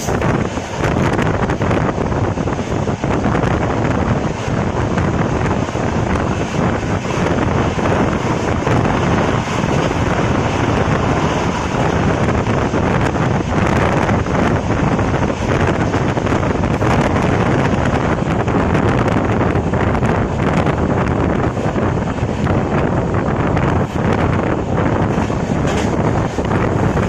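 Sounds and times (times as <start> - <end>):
train rumbling on rails: 0.0 - 27.0
wind buffeting microphone: 0.0 - 27.0
wheels clicking over rail joints: 23.5 - 27.0.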